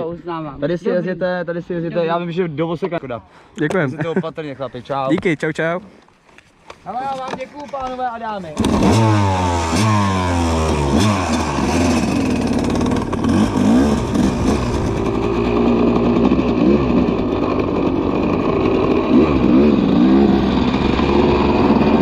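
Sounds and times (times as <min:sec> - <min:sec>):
dirt bike engines revving: 0:08.4 - 0:22.0.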